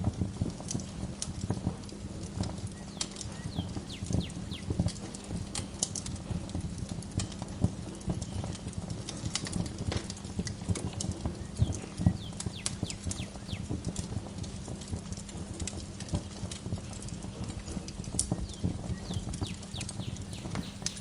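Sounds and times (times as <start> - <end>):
wood fire crackling: 0.0 - 21.0
bird chirping: 2.8 - 5.6, 11.4 - 13.8, 18.5 - 21.0.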